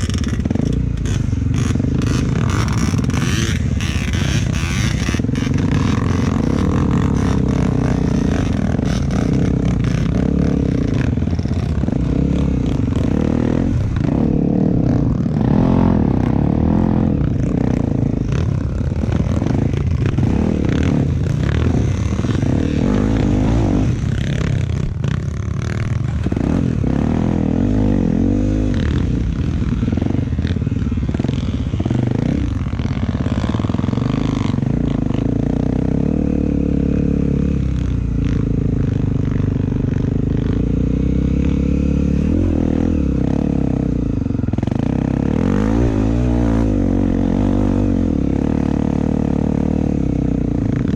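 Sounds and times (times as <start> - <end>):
bike rattling over rough ground: 0.0 - 14.0, 17.2 - 26.5
motorcycle engine under load: 0.0 - 50.9.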